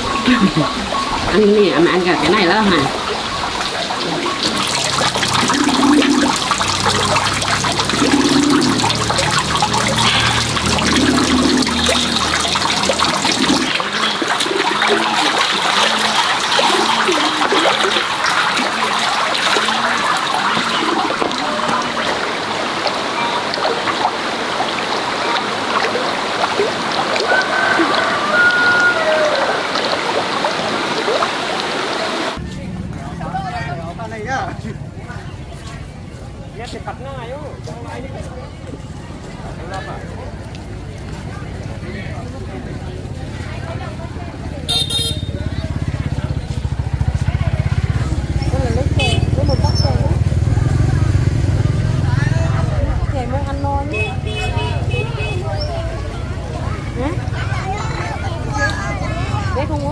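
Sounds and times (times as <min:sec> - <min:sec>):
running water trickling and splashing: 0:00.0 - 0:32.4, 0:35.2 - 0:59.9.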